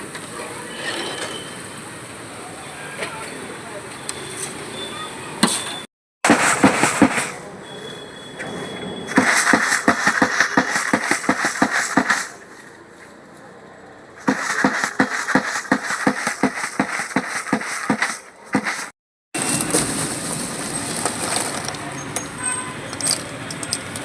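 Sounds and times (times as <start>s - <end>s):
rapid knocking: 6.3s - 7.3s, 9.1s - 12.3s, 14.2s - 18.9s.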